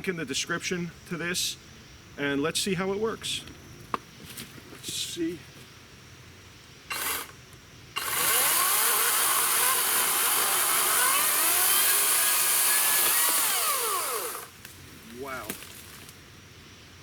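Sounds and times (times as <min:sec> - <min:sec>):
chainsaw cutting wood: 0:06.9 - 0:07.4, 0:08.0 - 0:14.6.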